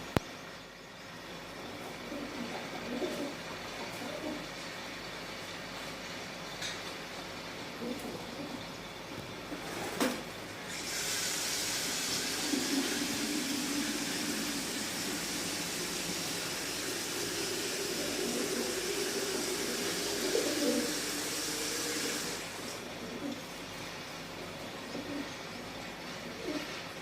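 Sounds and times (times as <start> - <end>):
pigeons cooing: 1.6 - 4.7, 7.6 - 8.8, 9.4 - 27.0
steady hiss: 7.2 - 27.0.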